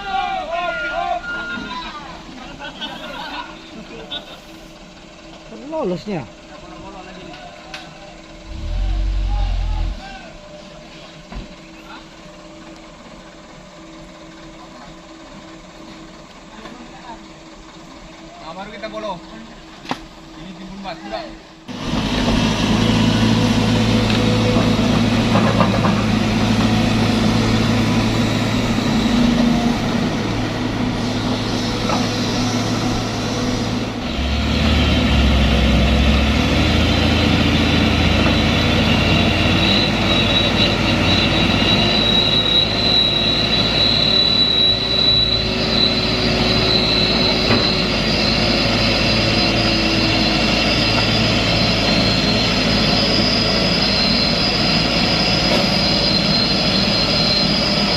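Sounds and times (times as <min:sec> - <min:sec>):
truck engine under load: 0:01.9 - 0:20.8, 0:21.4 - 0:57.9
high whine: 0:08.3 - 0:10.5.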